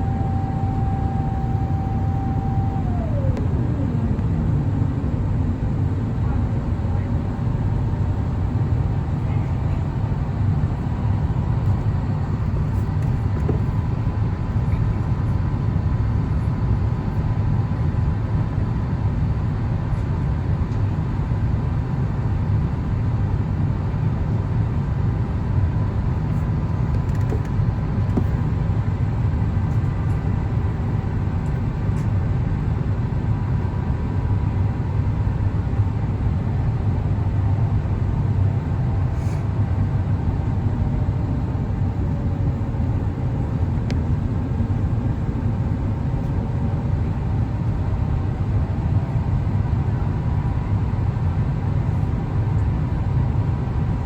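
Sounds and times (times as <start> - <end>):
faint steady whine: 0.0 - 7.1
airplane cabin rumble: 0.0 - 17.1, 24.3 - 54.0.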